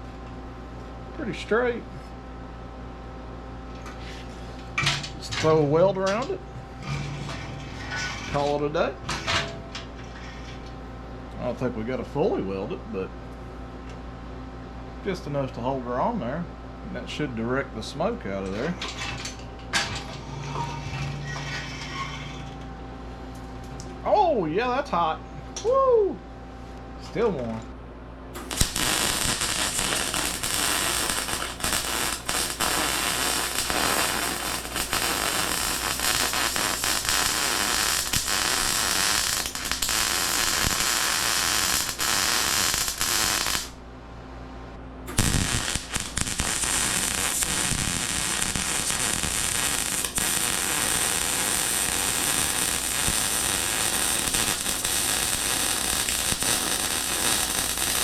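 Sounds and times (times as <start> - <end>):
welding arc crackling: 28.4 - 43.8, 45.1 - 58.0.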